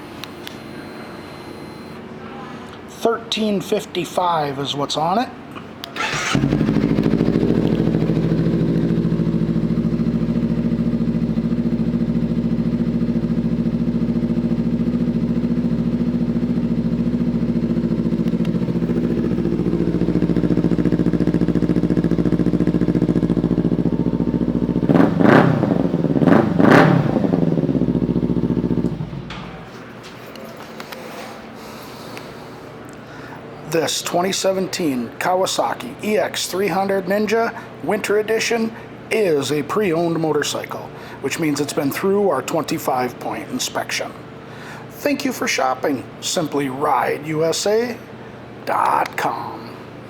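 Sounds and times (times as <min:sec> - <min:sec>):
motorcycle engine starting and idling: 0:05.8 - 0:30.1.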